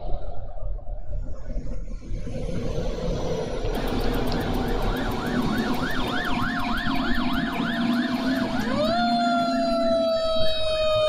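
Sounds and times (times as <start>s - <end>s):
steady low hum: 0.0s - 10.0s
emergency siren: 2.3s - 11.0s.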